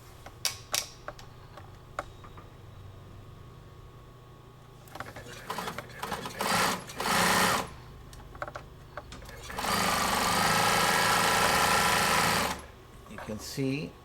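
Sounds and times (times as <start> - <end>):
sewing machine motor hum: 5.0 - 7.8, 9.2 - 12.8.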